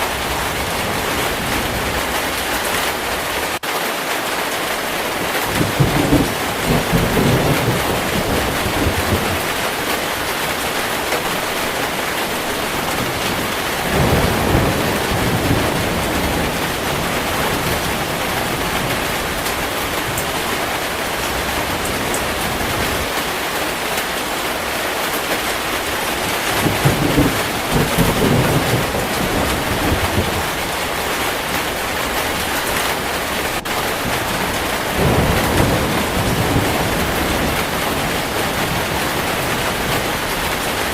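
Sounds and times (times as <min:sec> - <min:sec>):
heavy rain falling: 0:00.0 - 0:40.9
thunder rolling: 0:05.5 - 0:23.1, 0:25.8 - 0:40.9.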